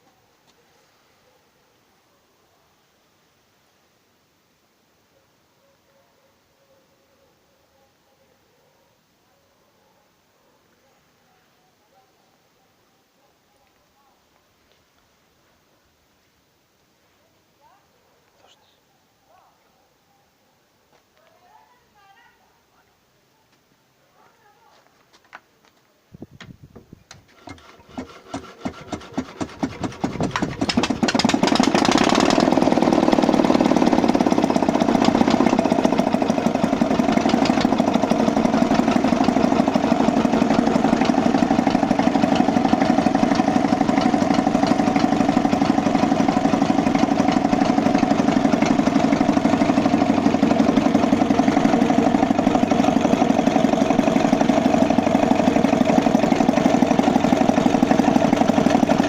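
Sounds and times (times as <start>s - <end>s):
diesel engine starting: 27.2s - 59.0s.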